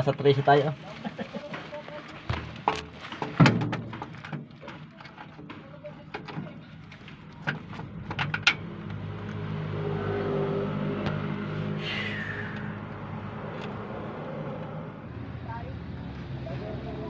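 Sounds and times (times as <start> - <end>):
vehicle engine hum: 3.8 - 17.0.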